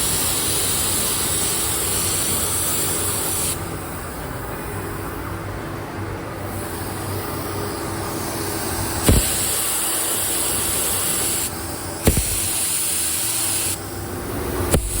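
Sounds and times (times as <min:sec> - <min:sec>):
paint spray gun hissing: 0:00.0 - 0:03.9, 0:08.1 - 0:15.0
steady hum: 0:03.6 - 0:15.0
spray gun trigger click: 0:09.1 - 0:09.6, 0:12.0 - 0:12.9, 0:14.7 - 0:15.0.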